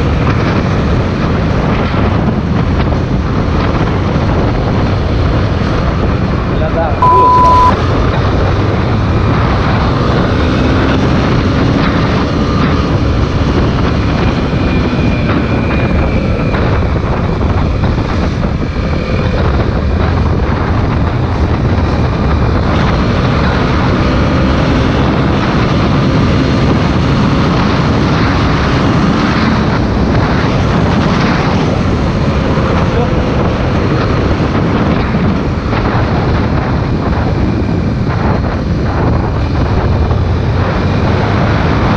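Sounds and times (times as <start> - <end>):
wind rush on microphone: 0.0 - 41.9.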